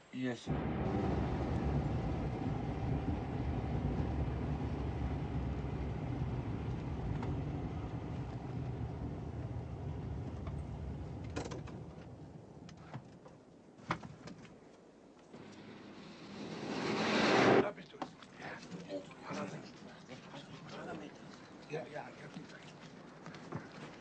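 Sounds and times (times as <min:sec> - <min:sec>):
vehicle engine rumbling: 0:00.5 - 0:13.0.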